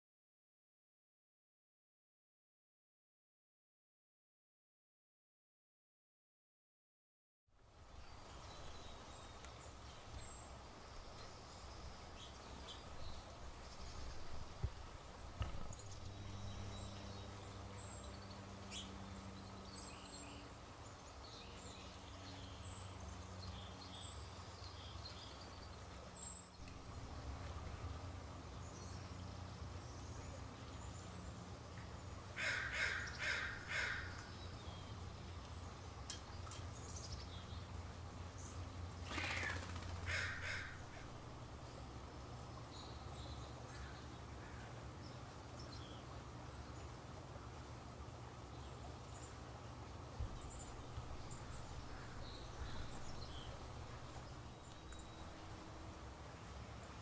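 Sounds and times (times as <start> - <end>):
steady low hum: 7.6 - 57.0
harsh bird calls: 32.4 - 34.8, 39.0 - 41.2.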